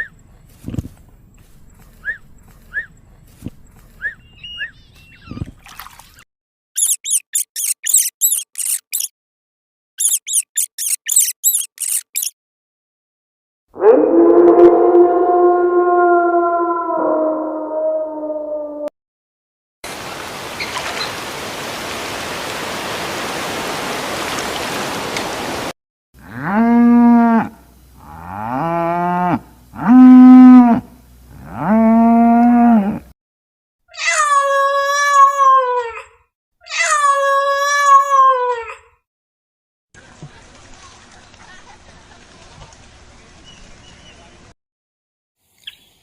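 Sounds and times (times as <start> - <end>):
high wavering animal calls: 4.0 - 5.4, 6.8 - 9.1, 10.0 - 12.3
drawn-out animal calls: 6.8 - 9.1, 10.0 - 12.3.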